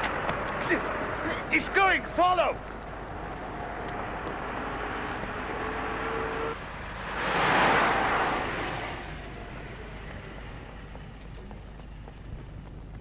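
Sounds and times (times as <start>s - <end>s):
tractor passing by: 0.0s - 13.0s
tractor diesel engine running: 8.6s - 13.0s.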